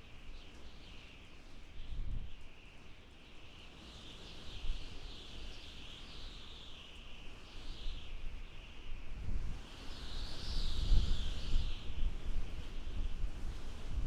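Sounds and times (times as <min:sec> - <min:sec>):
wind howling and whistling: 0:04.2 - 0:14.0.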